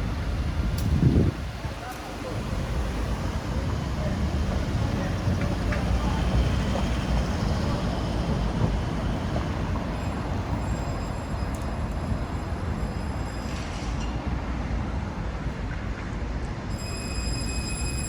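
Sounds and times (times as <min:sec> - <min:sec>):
traffic rumble: 0:00.0 - 0:10.8.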